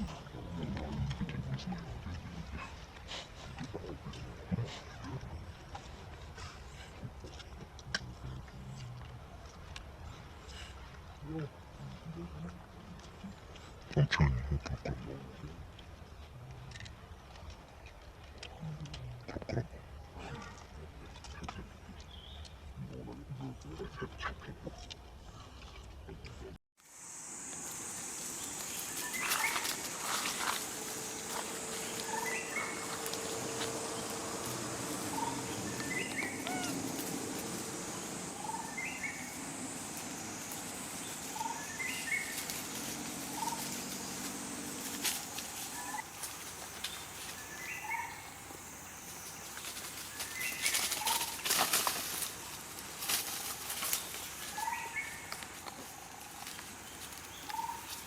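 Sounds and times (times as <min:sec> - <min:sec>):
steady high-pitched hiss: 0:26.8 - 0:58.0
rustling: 0:27.3 - 0:58.0.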